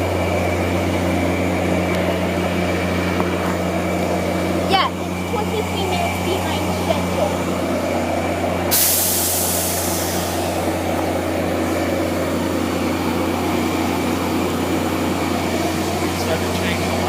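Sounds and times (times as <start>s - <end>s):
diesel locomotive idling: 0.0s - 17.0s
air hiss: 8.7s - 10.7s.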